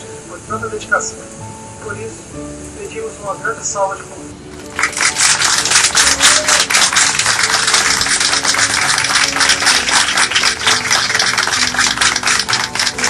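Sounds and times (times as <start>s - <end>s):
soft background music: 0.0s - 13.0s
crowd applauding: 4.6s - 13.0s.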